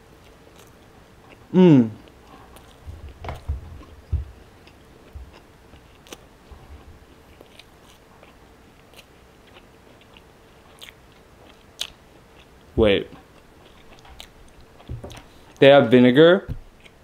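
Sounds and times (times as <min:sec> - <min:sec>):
person chewing: 0:00.2 - 0:15.6
low thumps: 0:02.8 - 0:04.5, 0:14.8 - 0:15.2.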